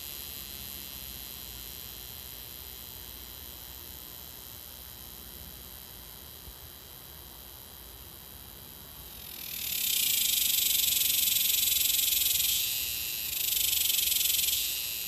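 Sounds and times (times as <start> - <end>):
cicada shrill buzzing drone: 8.9 - 15.0.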